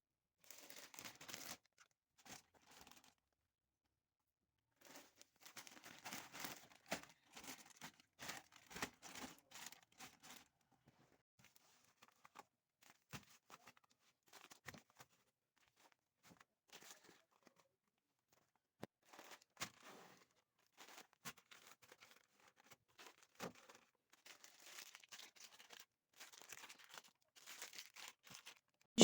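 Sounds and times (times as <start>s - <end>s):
plastic bags rustling and crinkling: 4.8s - 10.2s, 24.3s - 28.7s.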